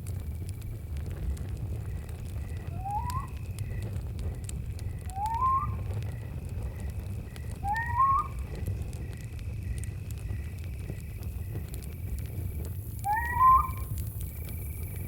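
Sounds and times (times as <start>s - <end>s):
campfire crackling: 0.0s - 15.0s
crickets chirping: 1.5s - 15.0s
rising whistled calls: 2.7s - 3.4s, 5.1s - 5.9s, 7.6s - 8.4s, 13.0s - 13.9s.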